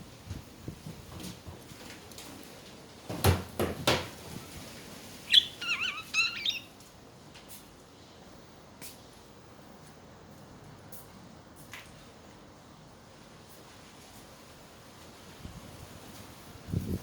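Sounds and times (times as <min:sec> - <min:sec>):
budgerigar warbling chirp: 0:05.3 - 0:06.7.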